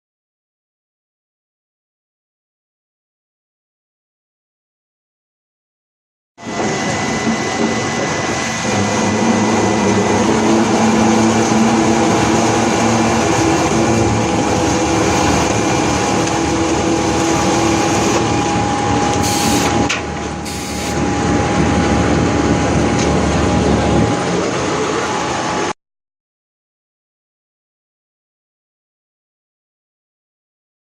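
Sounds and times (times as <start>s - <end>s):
motor hum: 6.4s - 25.7s
veneer lathe mechanical din: 6.5s - 21.6s
sharp rushes of noise: 6.5s - 21.8s.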